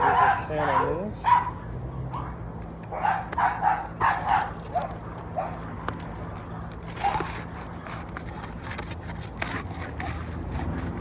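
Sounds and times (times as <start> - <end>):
dog yipping: 0.0 - 1.6, 2.9 - 5.7, 6.5 - 7.4.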